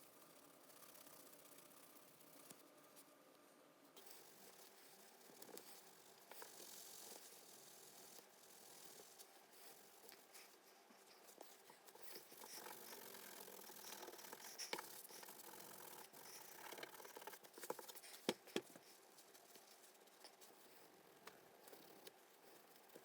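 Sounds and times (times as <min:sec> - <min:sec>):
scratching and rustling of objects: 0:04.0 - 0:23.0.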